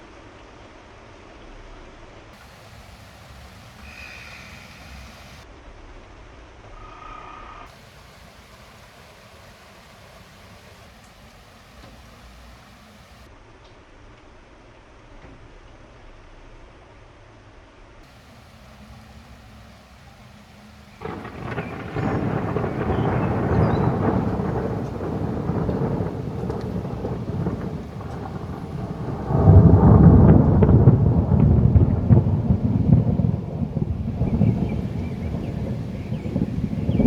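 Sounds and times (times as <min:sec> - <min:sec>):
thunder rumbling: 0:02.4 - 0:05.4, 0:07.7 - 0:13.3, 0:18.1 - 0:37.0.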